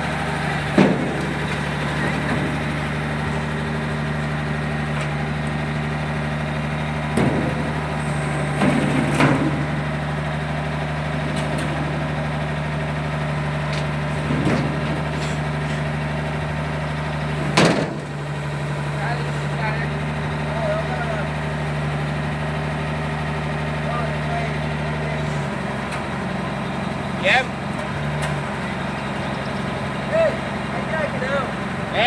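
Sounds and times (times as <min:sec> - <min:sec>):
motor humming: 0:00.0 - 0:32.0.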